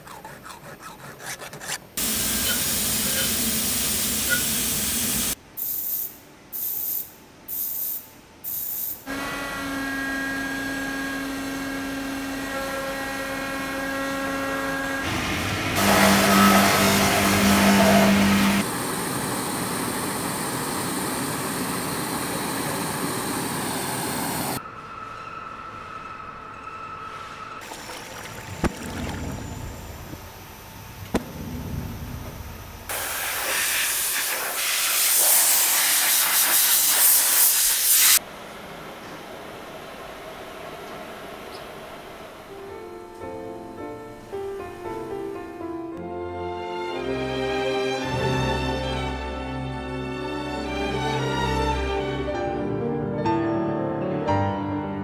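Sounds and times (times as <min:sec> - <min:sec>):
short hissing bursts: 0:02.0 - 0:09.0, 0:32.9 - 0:38.2
steady hiss: 0:02.0 - 0:09.0, 0:30.1 - 0:38.2
machine humming: 0:09.1 - 0:24.6, 0:27.9 - 0:33.0
noisy machinery: 0:09.1 - 0:24.6, 0:27.7 - 0:34.6.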